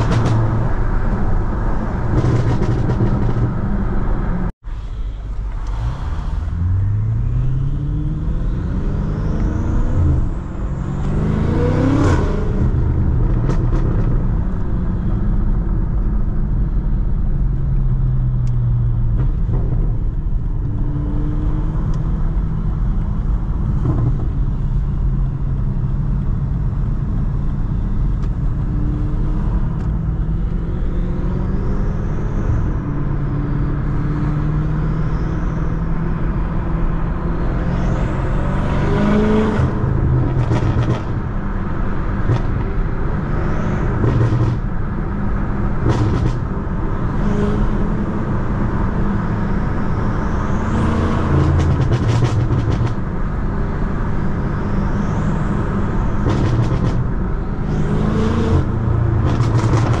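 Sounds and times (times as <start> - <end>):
car engine revving while driving: 0.0 - 4.5, 5.6 - 60.0.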